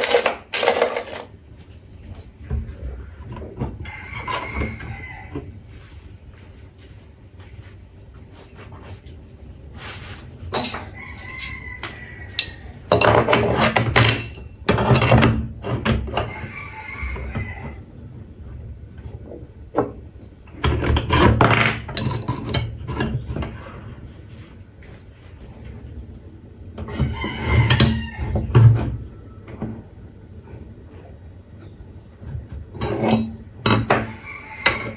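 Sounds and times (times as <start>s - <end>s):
knocks and clicks of hand tools: 10.5s - 16.5s.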